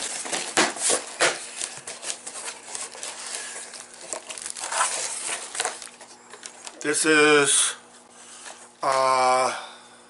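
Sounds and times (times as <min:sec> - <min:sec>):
packaging clicks and rustles: 0:00.0 - 0:07.0.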